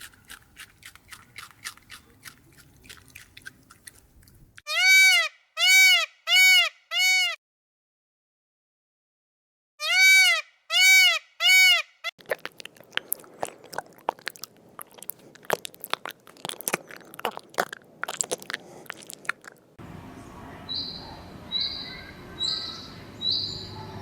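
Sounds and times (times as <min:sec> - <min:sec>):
animal chewing crunches: 0:00.0 - 0:04.6, 0:12.2 - 0:19.8.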